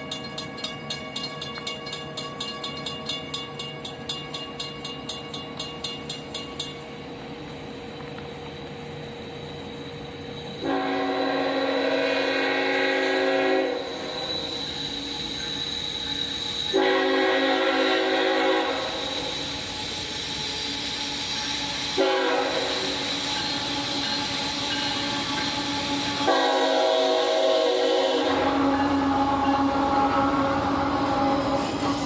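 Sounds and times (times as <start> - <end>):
locomotive air horn blasts: 10.6 - 14.2, 16.7 - 19.3, 21.8 - 23.0, 23.6 - 32.0.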